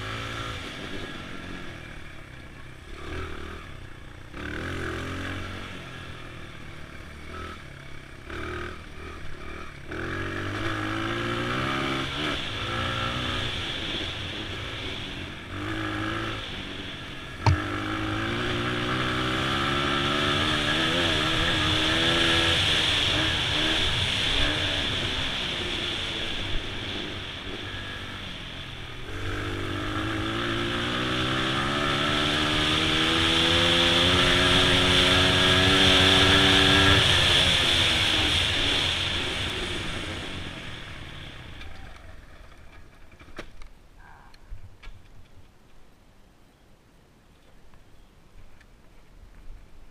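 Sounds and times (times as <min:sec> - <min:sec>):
dirt bike engine revving: 0:00.0 - 0:42.3
sharp knock: 0:17.4 - 0:17.7.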